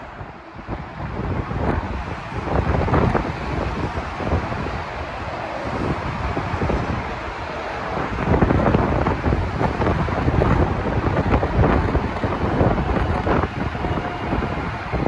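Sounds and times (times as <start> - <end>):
train wheels rumbling on rails: 0.0 - 15.0
wind on microphone: 0.0 - 15.0.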